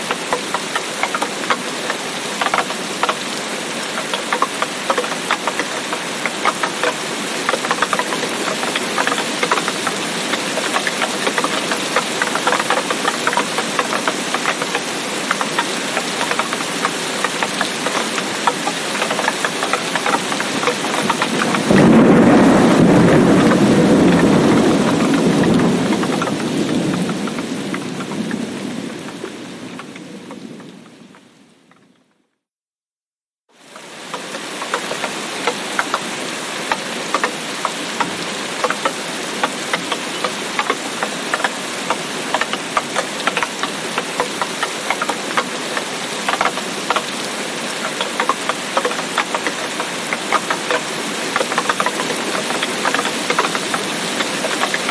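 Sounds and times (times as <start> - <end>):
heavy rain: 0.0 - 32.0, 33.5 - 54.9
thunder rumble: 20.1 - 31.3.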